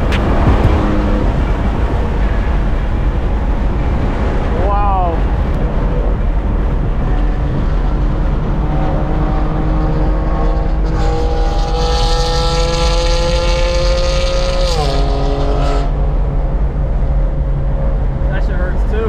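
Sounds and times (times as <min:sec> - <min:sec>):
car engine revving through gears: 0:00.0 - 0:03.0, 0:05.5 - 0:16.7
road and wind noise in cabin: 0:00.0 - 0:19.0.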